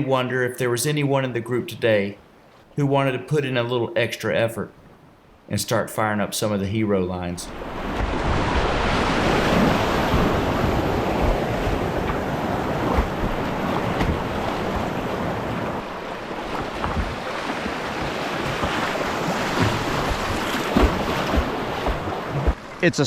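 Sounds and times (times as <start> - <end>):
rapids roaring: 7.0 - 23.0
wind buffeting microphone: 7.5 - 22.7.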